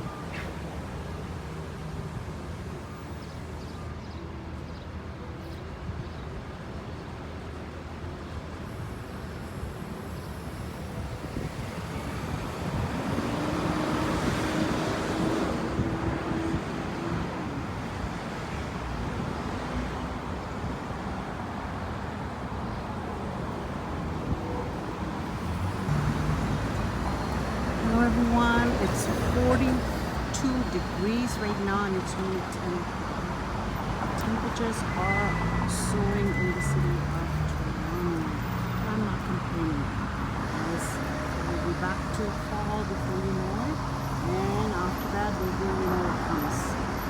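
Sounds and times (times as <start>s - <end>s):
street traffic: 0.0s - 47.0s
vehicle passing: 24.0s - 32.6s.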